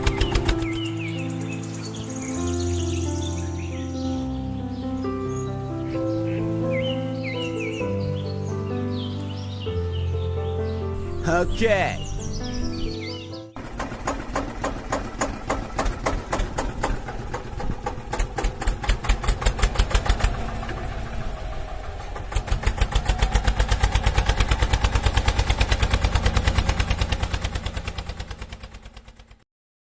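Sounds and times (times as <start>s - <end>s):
tractor engine chugging: 0.0s - 0.8s, 13.6s - 29.4s.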